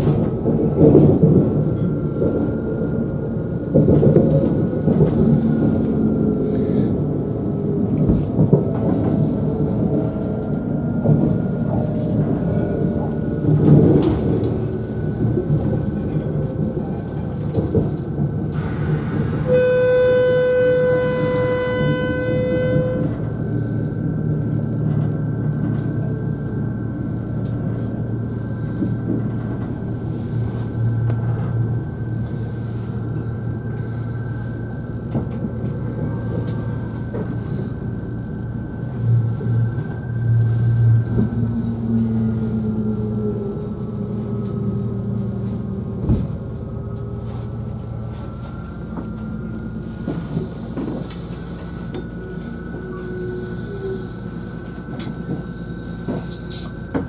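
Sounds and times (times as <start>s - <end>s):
train wheels on rails: 0.0s - 57.0s
train horn: 19.4s - 23.4s.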